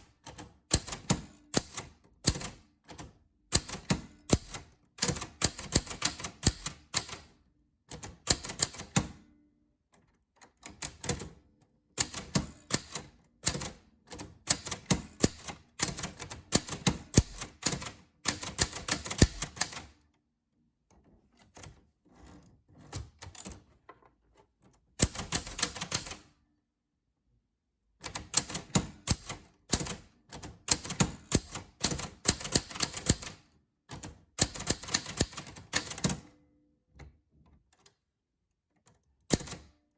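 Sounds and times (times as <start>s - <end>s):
typewriter keys clicking: 0.0s - 7.3s, 8.0s - 9.2s, 12.0s - 20.0s, 25.0s - 26.3s, 28.0s - 36.3s, 39.2s - 39.8s.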